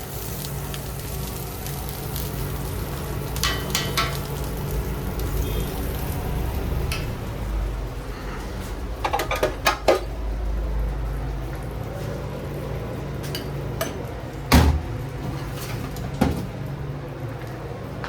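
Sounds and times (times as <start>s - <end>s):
kitchen equipment humming: 0.0s - 18.0s
pans and utensils clattering: 3.4s - 4.3s, 9.0s - 10.2s, 13.2s - 16.6s.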